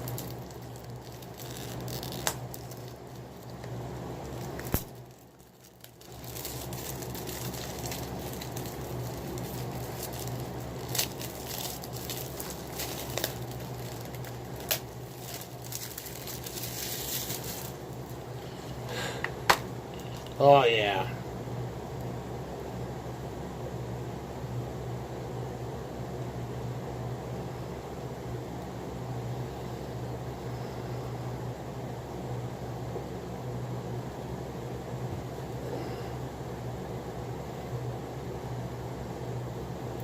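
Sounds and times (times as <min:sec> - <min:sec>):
packaging crinkling and rustling: 0:00.0 - 0:20.4
low hum: 0:00.0 - 0:21.4.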